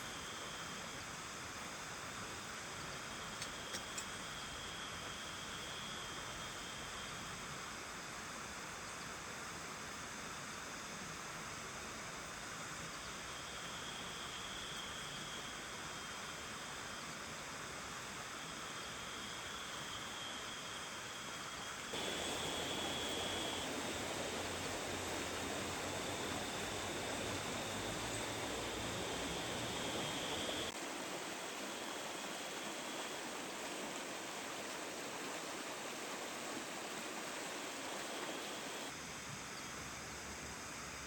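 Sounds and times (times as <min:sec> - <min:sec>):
steady rain falling: 0:21.8 - 0:38.9.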